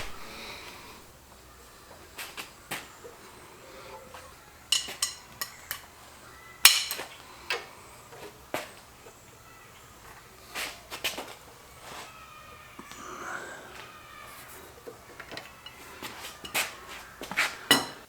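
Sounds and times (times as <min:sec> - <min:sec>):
metallic clinks of tools: 0:04.7 - 0:05.9, 0:06.6 - 0:07.1.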